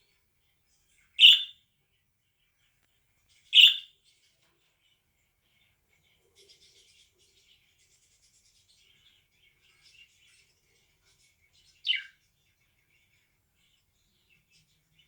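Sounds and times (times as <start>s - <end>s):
budgerigar chattering: 1.2s - 1.5s, 3.6s - 3.9s
budgerigar chirp falling in pitch: 1.2s - 1.6s, 3.6s - 3.9s.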